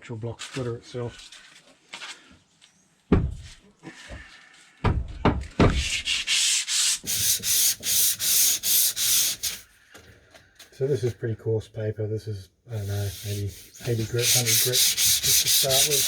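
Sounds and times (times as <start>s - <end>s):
sandpaper rubbing on wood: 5.8s - 9.7s, 12.7s - 16.0s.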